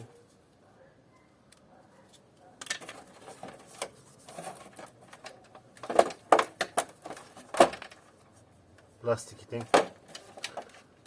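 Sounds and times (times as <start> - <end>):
plastic and metal parts clicking: 2.5 - 8.1, 9.6 - 11.0.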